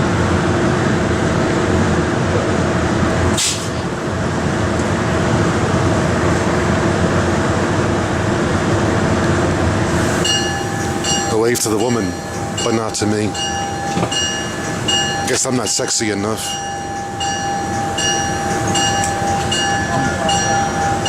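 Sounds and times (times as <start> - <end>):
train droning hum: 0.0 - 21.0
short hiss: 3.4 - 3.8.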